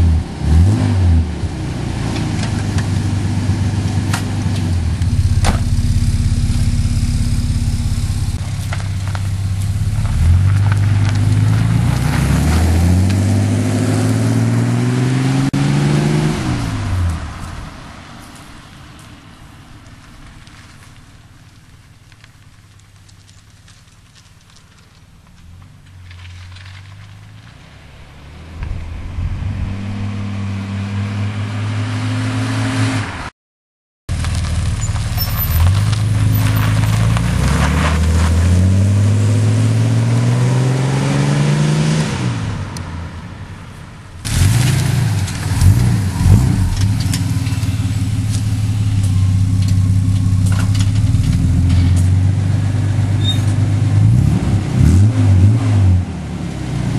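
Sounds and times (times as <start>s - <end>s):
car engine revving: 0.0s - 17.6s, 25.7s - 33.3s, 34.2s - 43.0s, 44.2s - 56.9s.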